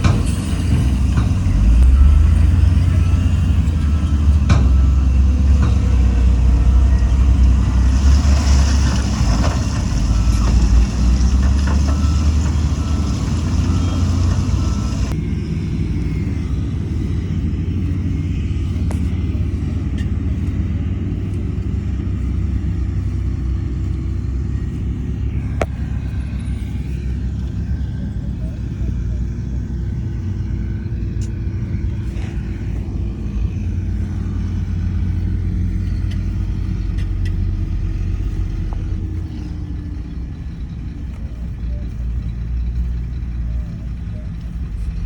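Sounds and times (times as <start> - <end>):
diesel machinery engine drone: 0.0 - 45.0.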